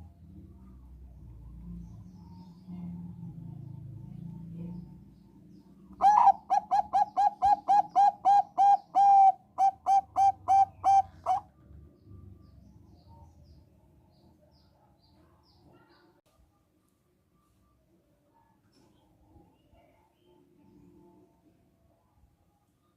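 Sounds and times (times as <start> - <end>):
dove cooing: 6.0 - 11.5.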